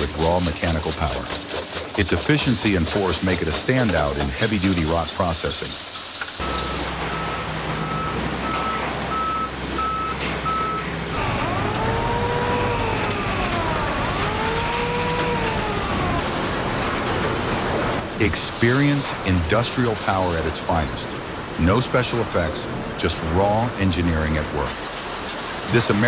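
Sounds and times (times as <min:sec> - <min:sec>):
backup alarm beeping: 0:06.4 - 0:16.2
rising and falling wails: 0:06.4 - 0:16.4
heavy machinery droning: 0:06.4 - 0:18.2.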